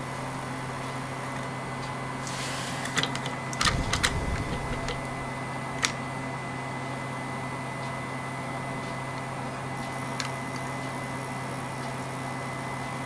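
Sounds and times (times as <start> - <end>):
brief rattle: 3.6 - 5.4.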